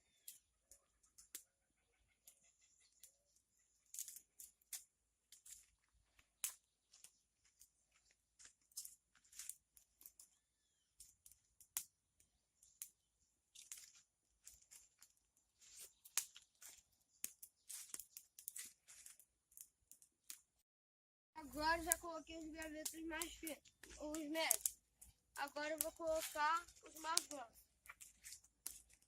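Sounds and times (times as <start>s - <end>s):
fire crackling and snapping: 0.1s - 1.5s, 2.2s - 20.6s, 21.4s - 29.0s
sticks laid on fire: 3.9s - 5.8s, 8.5s - 10.3s, 12.6s - 20.5s, 22.6s - 29.0s.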